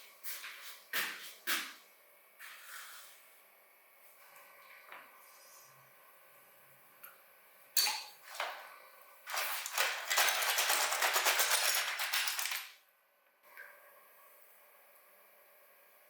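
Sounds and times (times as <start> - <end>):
fast rattling clicks: 9.3 - 12.7.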